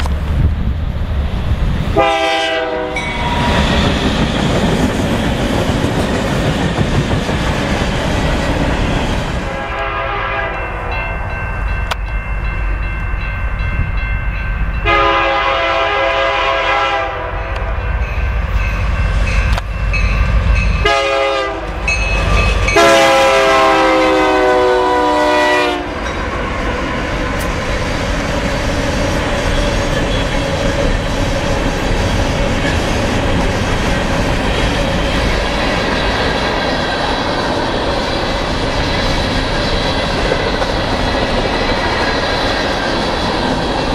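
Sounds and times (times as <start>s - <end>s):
locomotive air horn: 2.0s - 3.6s, 9.5s - 11.0s, 14.8s - 17.7s, 20.8s - 21.8s, 22.7s - 26.0s.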